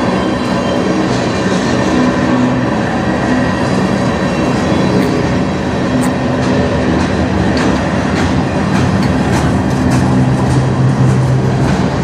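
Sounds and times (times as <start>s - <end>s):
train wheels rumbling on rails: 0.0s - 12.0s
clickety-clack of wheels: 5.9s - 12.0s.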